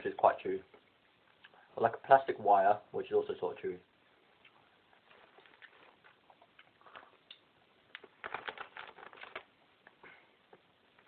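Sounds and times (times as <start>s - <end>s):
person chewing: 4.4s - 7.4s.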